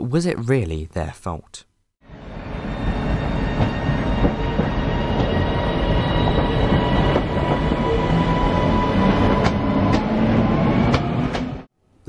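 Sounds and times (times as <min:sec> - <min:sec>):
train wheels rumbling: 0:02.1 - 0:11.7.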